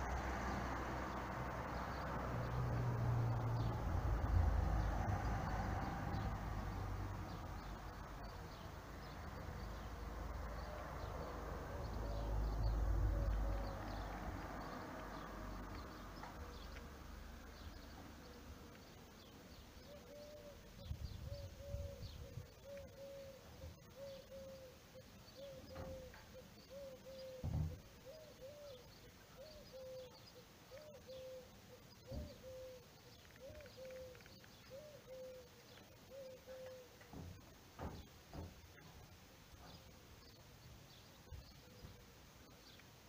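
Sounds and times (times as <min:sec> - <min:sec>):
faint high bird chirps: 0:17.5 - 0:37.1.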